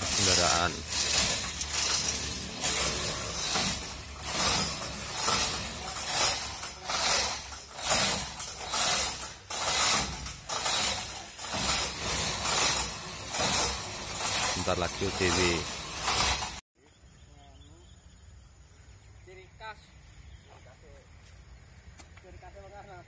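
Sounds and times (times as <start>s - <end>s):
ratchet rasping: 0.0s - 16.6s.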